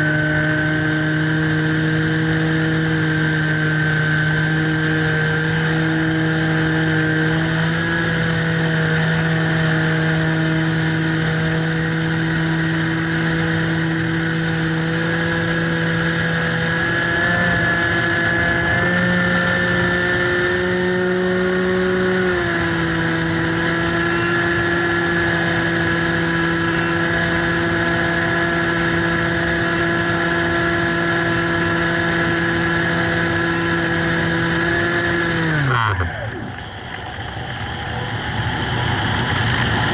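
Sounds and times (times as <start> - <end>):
model plane motor and propeller: 0.0 - 39.9.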